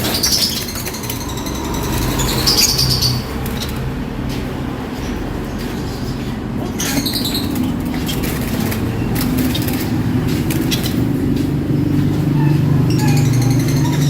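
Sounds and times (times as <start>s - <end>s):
high bird chirp: 0.0s - 3.9s, 11.9s - 14.0s
low hum: 0.0s - 6.6s
birds fluttering wings: 0.0s - 14.0s.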